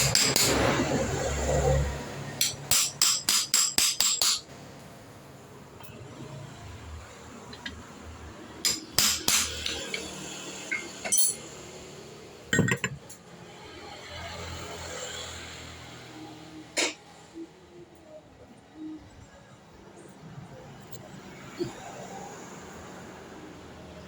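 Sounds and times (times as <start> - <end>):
metal clinking and knocking: 10.7 - 11.5, 12.5 - 13.2.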